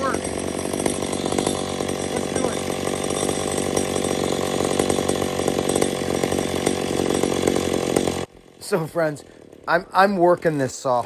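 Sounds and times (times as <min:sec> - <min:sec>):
chainsaw cutting log: 0:00.0 - 0:11.0.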